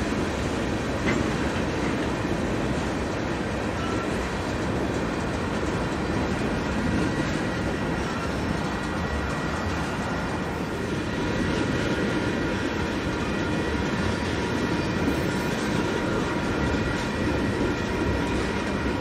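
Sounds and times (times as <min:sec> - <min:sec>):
freight train cars rolling: 0:00.0 - 0:19.0
faint high wheel squeals: 0:03.6 - 0:04.4, 0:06.4 - 0:19.0.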